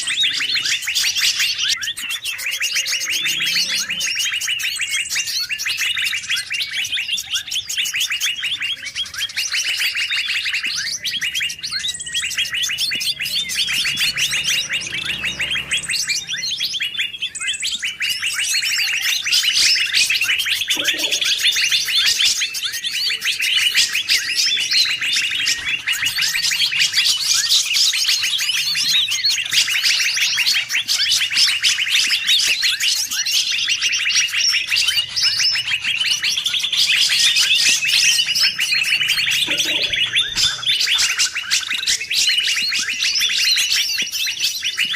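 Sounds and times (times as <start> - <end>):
songbirds chirping and trilling: 0.0 - 44.9.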